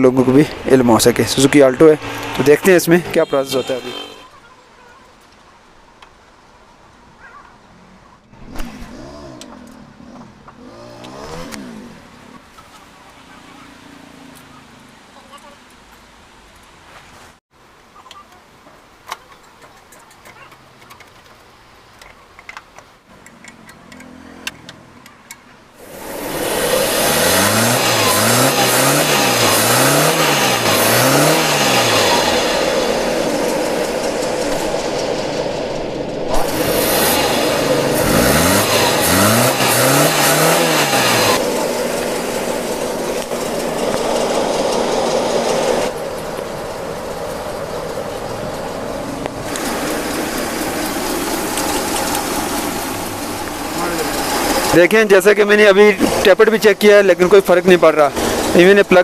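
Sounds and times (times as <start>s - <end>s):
car engine revving and idling: 8.3s - 15.8s, 25.8s - 58.9s.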